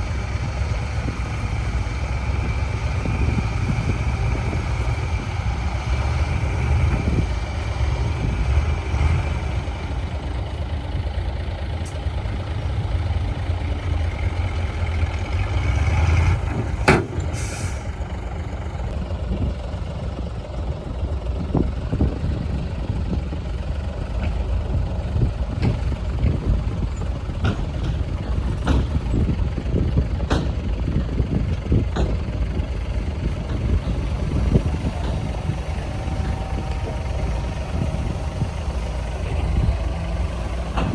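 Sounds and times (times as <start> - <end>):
diesel machinery engine rumble: 0.0 - 40.9
short hiss: 17.3 - 17.9.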